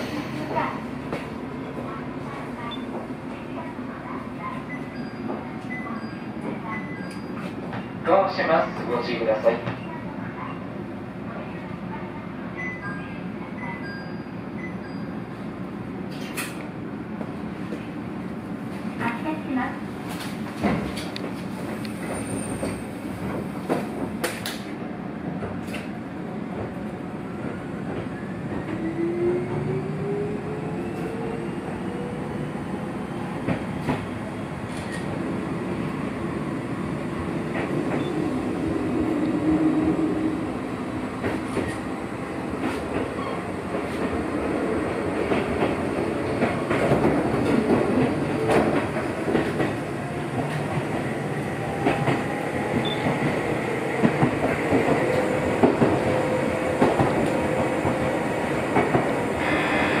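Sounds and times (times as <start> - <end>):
train rumble from inside: 0.0 - 60.0.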